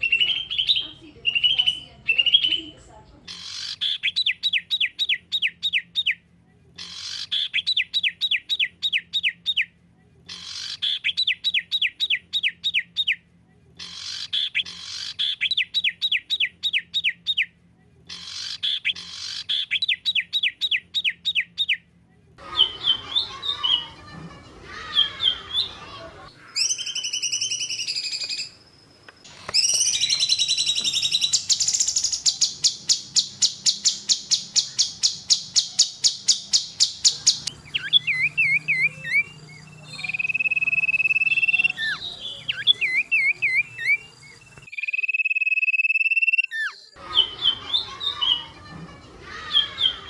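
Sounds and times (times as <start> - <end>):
songbird singing: 0.0 - 6.2, 22.4 - 28.7, 29.3 - 50.0.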